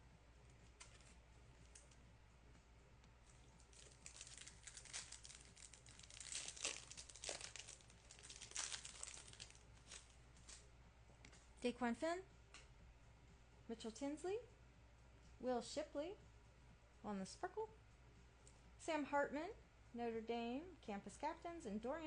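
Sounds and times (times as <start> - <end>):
plastic wrapper tearing and crinkling: 3.4 - 10.6.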